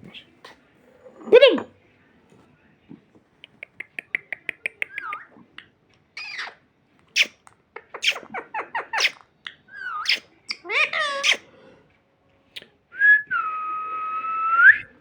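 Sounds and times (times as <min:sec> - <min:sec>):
parrot calls: 0:06.2 - 0:06.6, 0:07.2 - 0:11.5
parrot squawking: 0:06.2 - 0:06.6, 0:07.2 - 0:09.2, 0:09.8 - 0:11.5.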